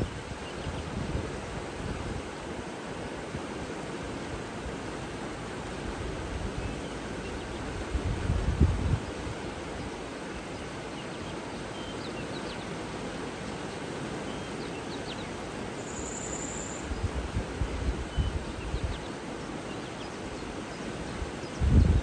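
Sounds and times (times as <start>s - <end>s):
wind rumbling on microphone: 0.0s - 2.4s, 5.8s - 10.0s, 16.8s - 19.1s, 21.1s - 22.0s
faint bird chirps: 10.3s - 12.7s, 14.3s - 17.1s.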